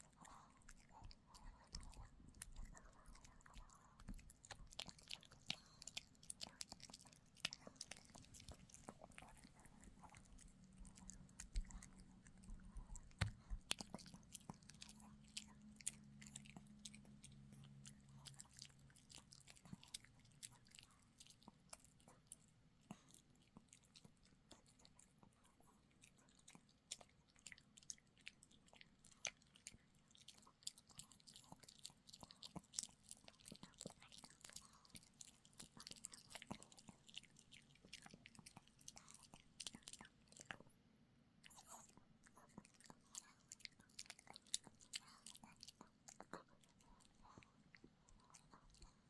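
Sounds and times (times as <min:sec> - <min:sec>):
dog chewing a hard chew: 0:00.0 - 0:22.1.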